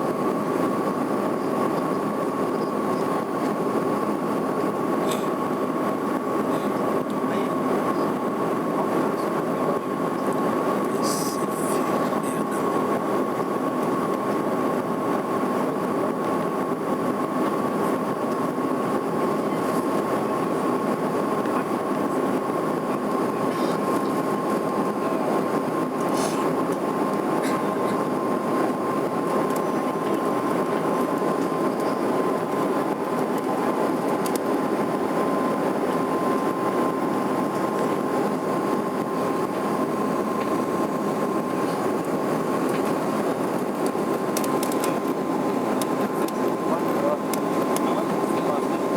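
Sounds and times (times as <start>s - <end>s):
airliner cabin engine and air rush: 0.0s - 48.9s.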